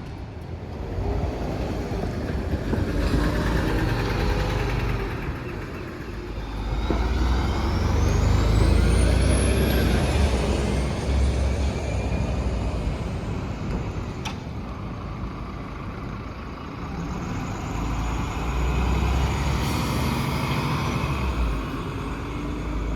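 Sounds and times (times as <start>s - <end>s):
transit vehicle rumble and whine: 0.0s - 22.9s.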